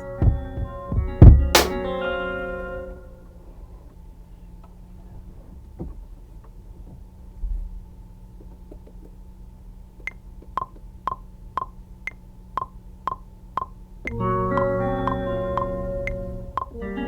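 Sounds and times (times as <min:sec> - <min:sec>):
metronome clicking: 0:10.0 - 0:16.8.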